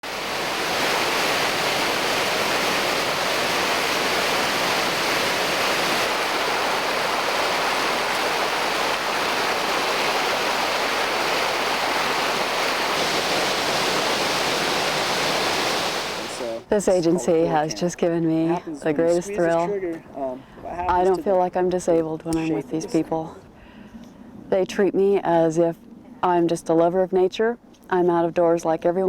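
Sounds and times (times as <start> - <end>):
flowing water rushing: 0.0 - 19.7.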